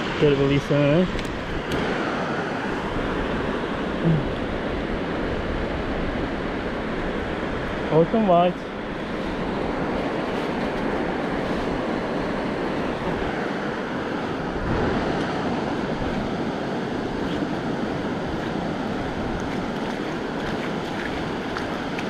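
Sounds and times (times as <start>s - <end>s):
sea waves washing on shore: 0.0s - 22.0s
wind on microphone: 8.7s - 22.0s.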